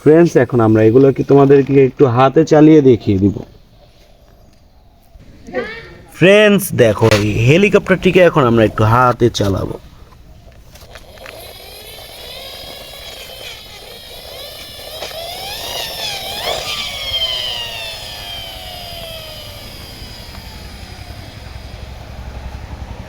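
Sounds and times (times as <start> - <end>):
aircraft engine flying past: 10.9 - 23.0.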